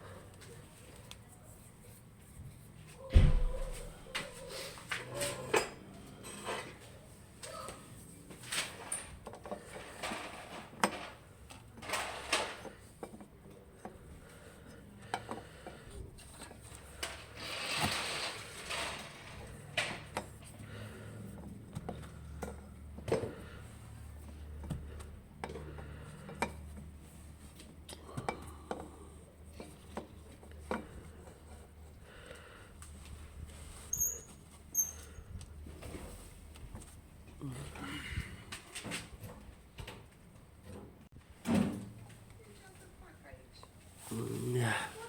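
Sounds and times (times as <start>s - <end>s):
heavy thump: 3.1s - 4.0s
scraping rustle: 17.0s - 19.6s.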